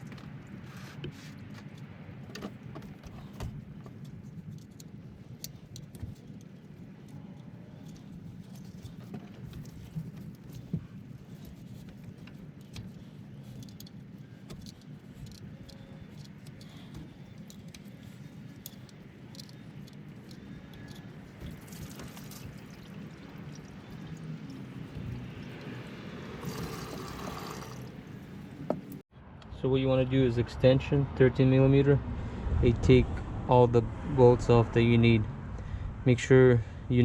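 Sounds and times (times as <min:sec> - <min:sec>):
coolant trickling and dripping: 0:00.0 - 0:29.0.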